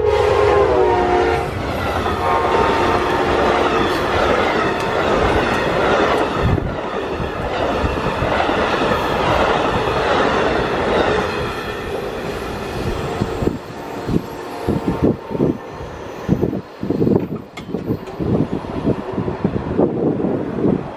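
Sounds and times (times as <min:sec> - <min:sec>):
train wheels rushing on rails: 0:00.0 - 0:20.9
clickety-clack over rail joints: 0:01.6 - 0:15.7, 0:16.3 - 0:20.9.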